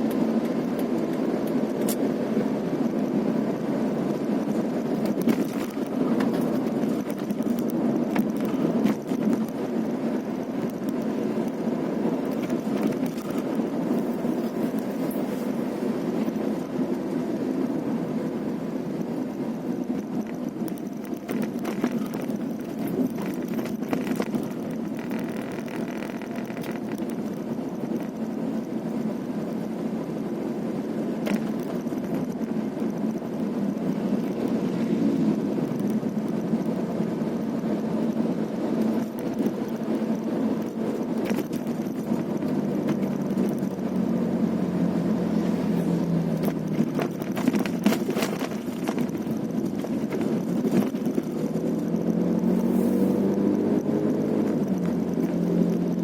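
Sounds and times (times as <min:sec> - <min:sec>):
vehicle engine driving: 0:00.0 - 0:56.0.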